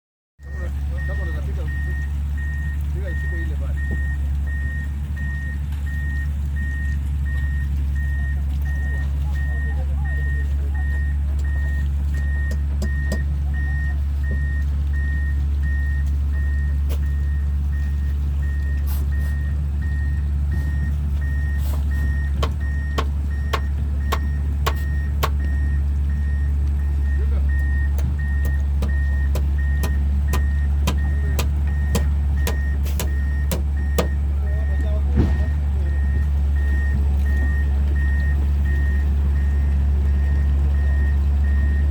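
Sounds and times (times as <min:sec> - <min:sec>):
travel alarm beeping: 0:00.4 - 0:39.5
excavator diesel engine running: 0:00.4 - 0:41.9
sharp metallic knocks: 0:22.4 - 0:25.4, 0:28.0 - 0:34.2.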